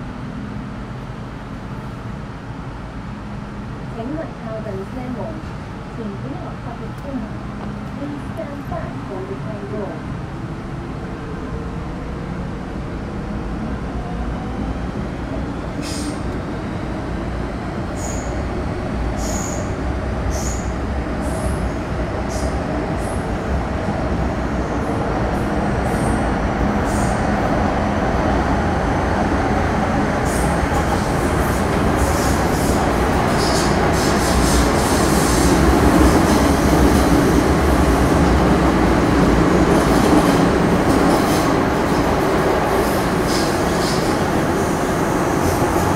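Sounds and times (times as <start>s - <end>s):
train running rumble: 0.0s - 45.9s
train wheel squeals: 18.0s - 18.4s, 19.2s - 20.7s.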